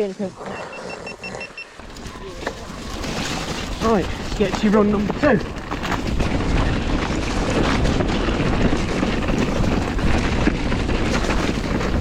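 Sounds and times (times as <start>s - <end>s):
bike tyre noise: 1.8s - 12.0s
bike knocks and rattles: 2.0s - 12.0s
wind on microphone: 2.8s - 12.0s.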